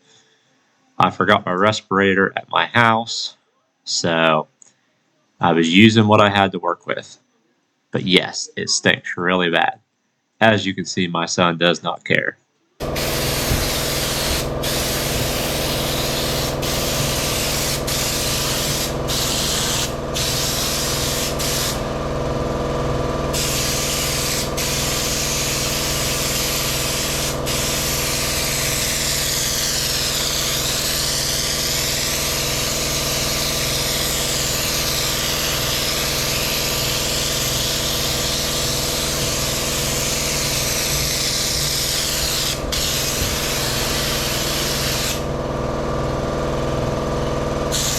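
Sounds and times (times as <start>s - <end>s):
steady mechanical hum: 12.4s - 47.9s
spray gun hissing: 12.8s - 22.2s, 23.3s - 45.4s.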